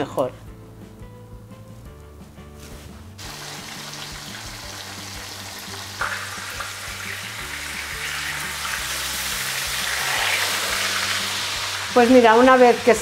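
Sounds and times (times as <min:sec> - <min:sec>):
food frying in hot oil: 0:03.2 - 0:13.0.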